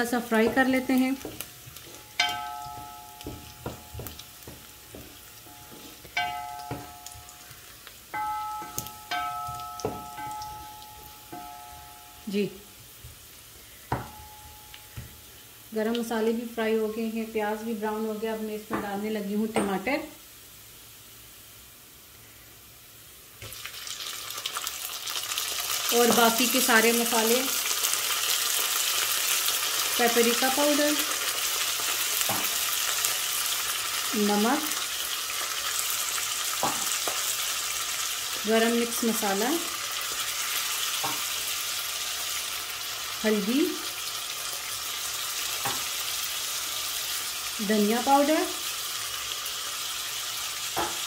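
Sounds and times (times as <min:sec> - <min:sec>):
onions sizzling in hot oil: 0:00.0 - 0:51.0
ringing notes: 0:01.9 - 0:12.7, 0:13.9 - 0:15.3
wooden spoon scraping a pot: 0:03.6 - 0:06.2.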